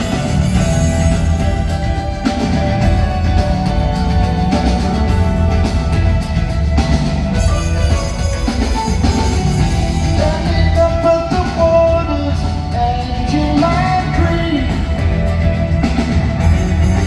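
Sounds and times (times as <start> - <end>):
live rock band playing: 0.0 - 17.0
person singing: 8.2 - 15.5.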